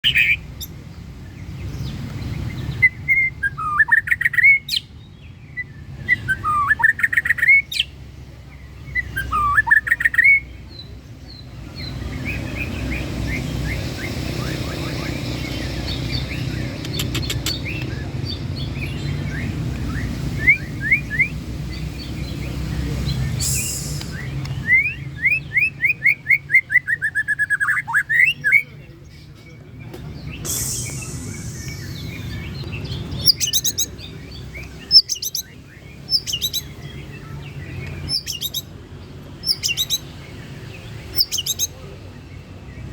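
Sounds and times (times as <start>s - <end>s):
bird singing varied song: 0.0s - 42.9s
steady low rumble: 30.5s - 33.4s.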